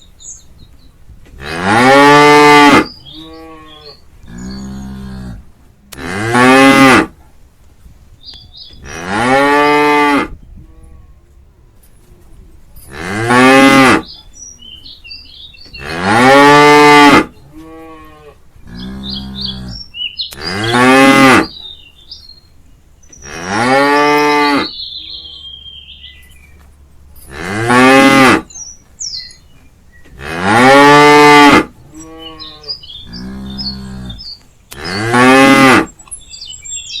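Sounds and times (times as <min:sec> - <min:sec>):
birds chirping: 0:00.0 - 0:37.0
cow mooing: 0:01.4 - 0:07.1, 0:08.8 - 0:11.3, 0:12.9 - 0:14.1, 0:15.8 - 0:21.6, 0:23.2 - 0:25.6, 0:27.3 - 0:28.5, 0:30.1 - 0:36.0.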